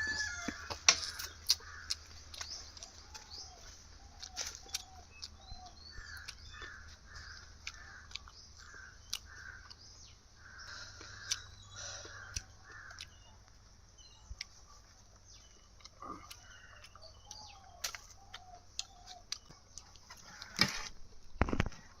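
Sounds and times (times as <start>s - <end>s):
birds cawing: 0.0s - 13.4s, 16.0s - 19.3s, 20.1s - 20.9s.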